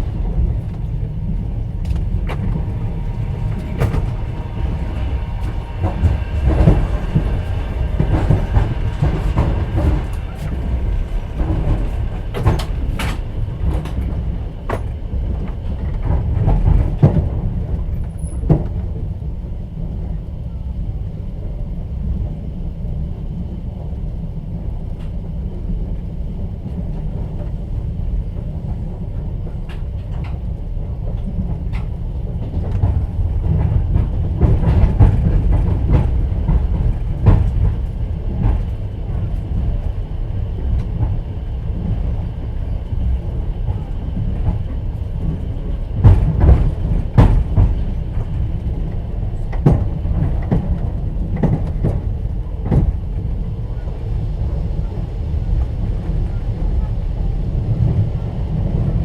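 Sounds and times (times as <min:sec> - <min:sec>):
wheels clacking over rail joints: 0:00.0 - 0:19.0, 0:29.2 - 0:53.9
train wheels rumbling: 0:00.0 - 0:59.0.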